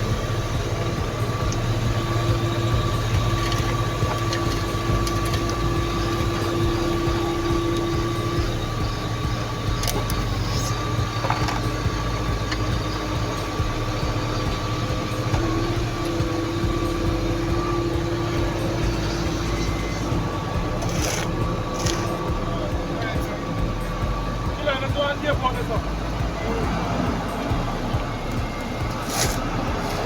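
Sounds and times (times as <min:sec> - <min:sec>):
machinery whine: 0:00.0 - 0:30.0
paving machinery engines rumbling: 0:00.0 - 0:30.0.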